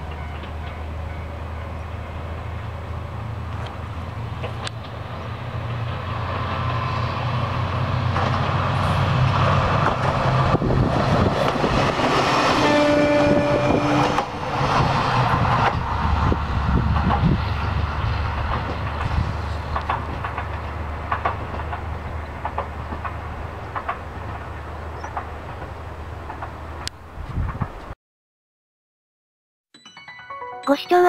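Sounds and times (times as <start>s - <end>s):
diesel railcar engine drone: 0.0s - 27.9s
train wheels clicking over rails: 3.4s - 12.6s, 14.0s - 27.9s.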